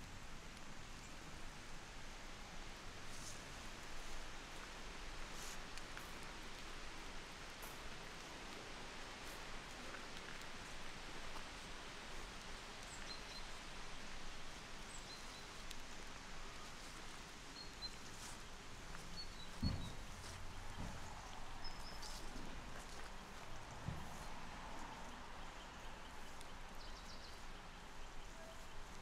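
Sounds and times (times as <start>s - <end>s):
steady hiss: 0.0s - 29.0s
small birds chirping: 11.6s - 29.0s
dull thump: 19.5s - 20.2s.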